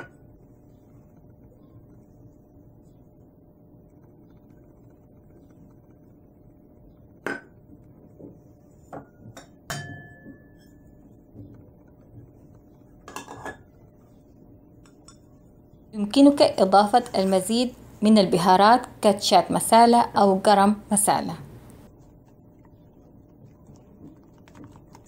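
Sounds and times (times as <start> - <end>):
metal bowls clinking on ceramic: 9.4 - 10.8.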